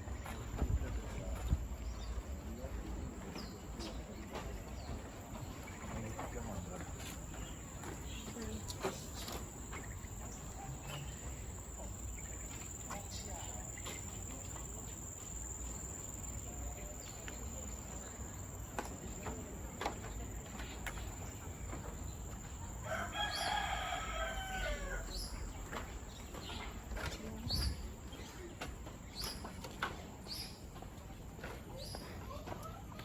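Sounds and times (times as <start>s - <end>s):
rooster crowing: 22.8s - 25.2s.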